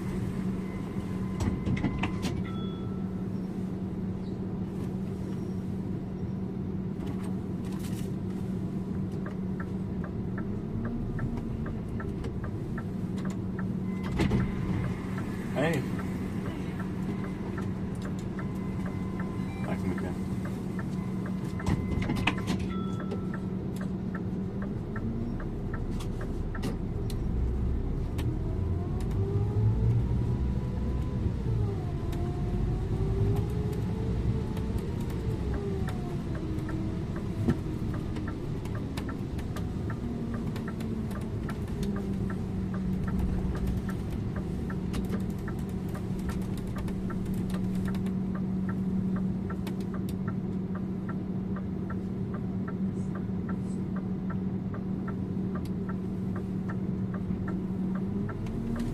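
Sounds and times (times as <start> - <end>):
bus diesel engine: 0.0 - 58.9
road rumble: 0.0 - 58.9.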